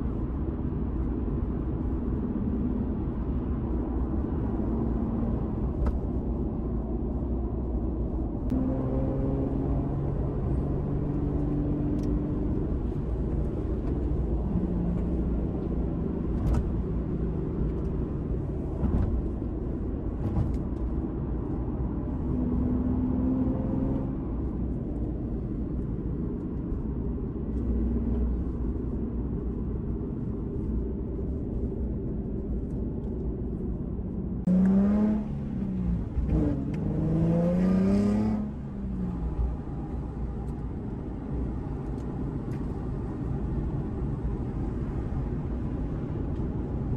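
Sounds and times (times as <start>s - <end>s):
car engine revving: 8.5s - 12.8s, 34.5s - 39.6s.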